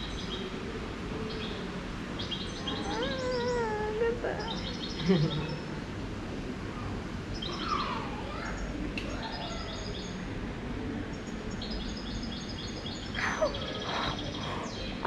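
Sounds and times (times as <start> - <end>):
low background hum: 0.0 - 15.0
small birds chirping: 2.2 - 5.7, 7.3 - 10.2, 11.1 - 15.0.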